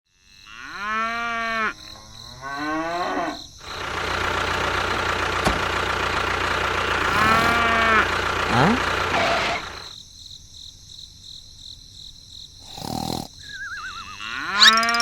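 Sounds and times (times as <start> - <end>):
cow mooing: 0.5 - 3.5, 7.0 - 9.6, 13.4 - 15.0
engine-like running noise: 3.6 - 9.9.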